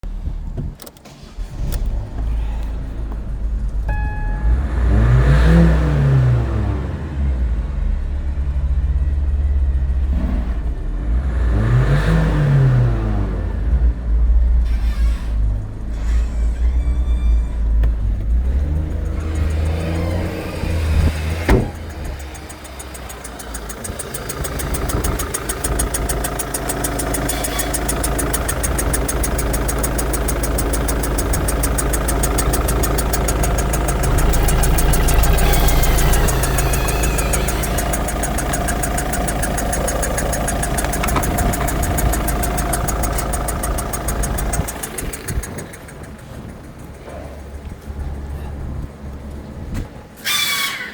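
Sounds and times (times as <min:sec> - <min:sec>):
diesel engine revving: 0:00.0 - 0:50.8
sharp click: 0:18.9 - 0:47.8.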